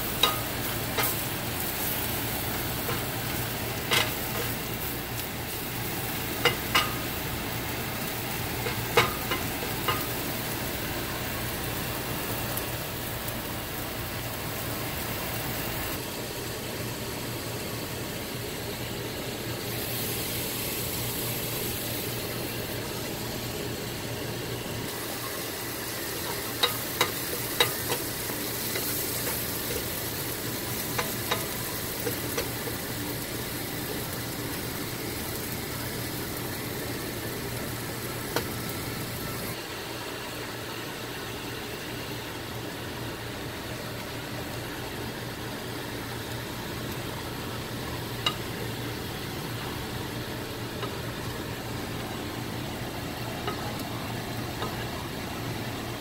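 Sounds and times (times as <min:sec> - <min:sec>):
mushrooms sizzling in a pan: 0:00.0 - 0:56.0.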